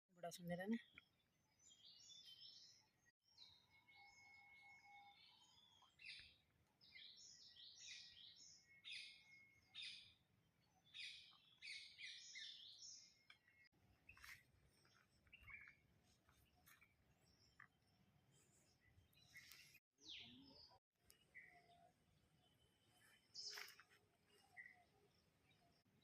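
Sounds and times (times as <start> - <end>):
birds chirping: 0.3 - 26.0.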